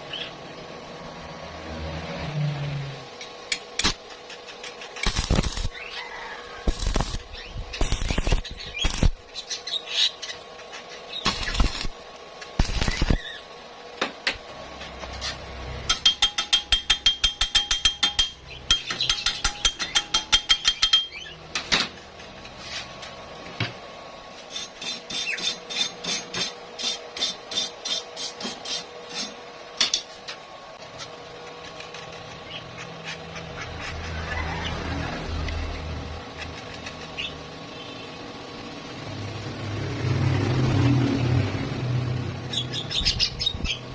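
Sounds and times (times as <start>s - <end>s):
rapid ringing metal strikes: 15.9s - 21.9s.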